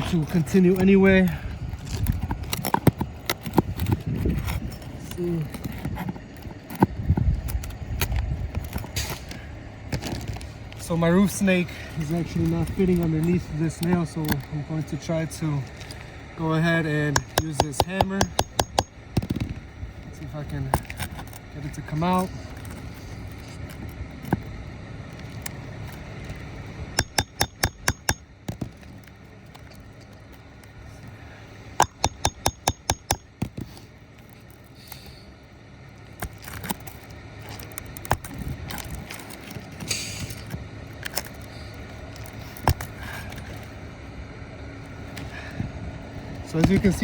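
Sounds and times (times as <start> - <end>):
hammer tapping on nail: 17.2 - 19.4, 27.0 - 28.6, 31.8 - 33.6.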